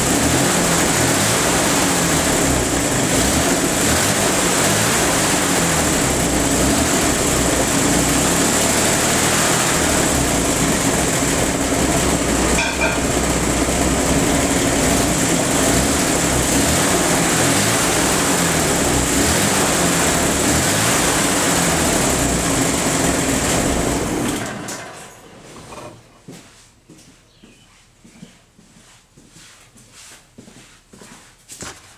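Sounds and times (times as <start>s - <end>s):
car engine running: 0.0s - 26.1s.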